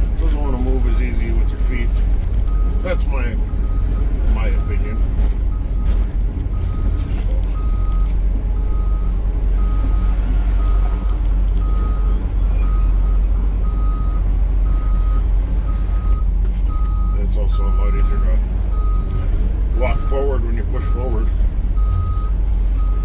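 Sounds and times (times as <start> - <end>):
diesel engine rumbling: 0.0 - 23.0
travel alarm beeping: 7.6 - 19.2, 19.8 - 23.0.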